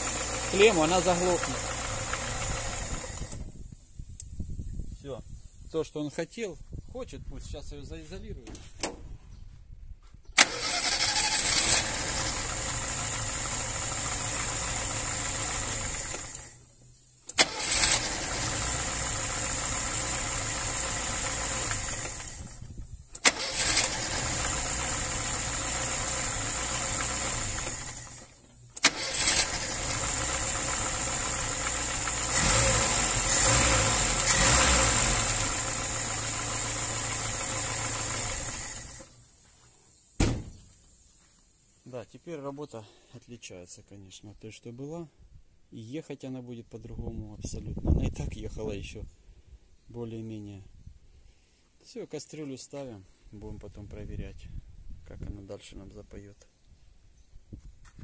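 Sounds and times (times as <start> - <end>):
car engine idling: 0.0 - 3.3, 10.9 - 16.6, 17.4 - 22.5, 23.3 - 39.1.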